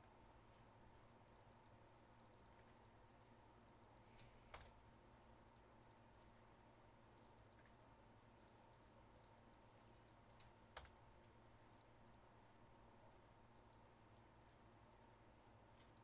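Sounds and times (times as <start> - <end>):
low steady hum: 0.0 - 16.0
computer keyboard clicks: 7.2 - 7.8, 8.4 - 12.2.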